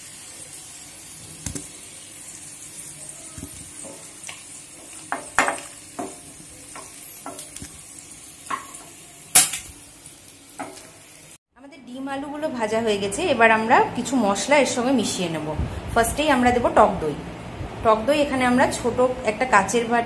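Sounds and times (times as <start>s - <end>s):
food sizzling in hot oil: 0.0s - 11.4s
spatula knocking and scraping pan: 3.4s - 7.7s.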